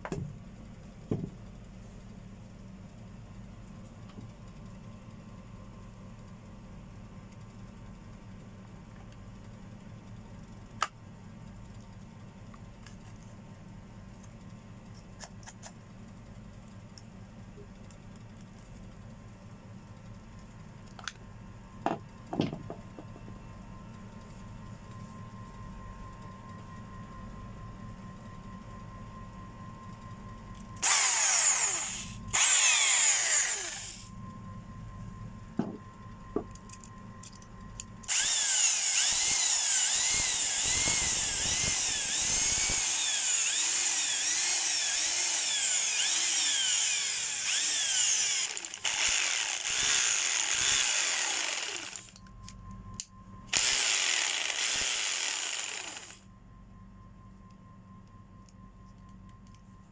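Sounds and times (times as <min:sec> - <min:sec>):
electric motor running: 0:30.8 - 0:34.1, 0:38.1 - 0:52.2, 0:53.5 - 0:56.2
motor winding down: 0:30.8 - 0:34.1, 0:38.0 - 0:52.2, 0:53.5 - 0:56.2.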